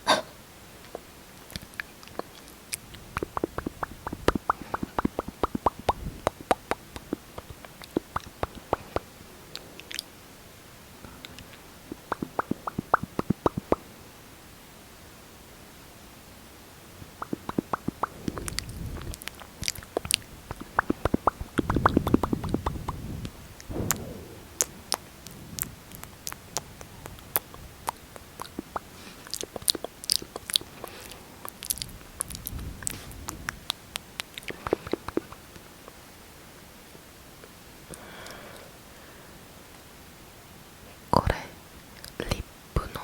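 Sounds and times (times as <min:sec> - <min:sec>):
lip smacking: 0:01.5 - 0:09.1, 0:11.3 - 0:13.8, 0:17.2 - 0:23.0, 0:26.0 - 0:32.6
sticky mouth clicks: 0:01.6 - 0:09.1, 0:11.3 - 0:13.8, 0:17.2 - 0:23.0, 0:26.0 - 0:32.6, 0:34.2 - 0:35.5.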